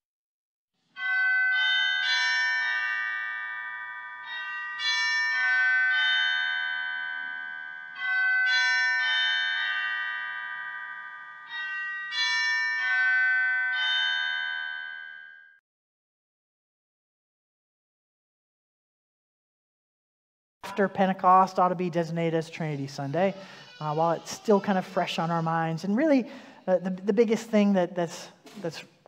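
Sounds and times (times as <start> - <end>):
bell-like chimes playing melody: 0.9 - 15.6.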